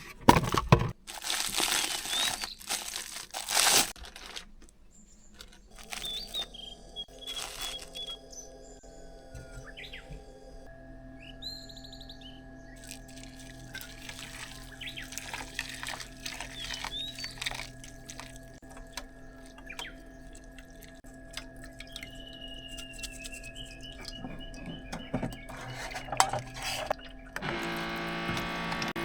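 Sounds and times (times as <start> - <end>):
faint hum: 4.7 - 29.0
bird chirps: 4.9 - 10.5, 11.1 - 13.4, 14.2 - 27.4
small objects clicking and clinking: 12.8 - 22.0.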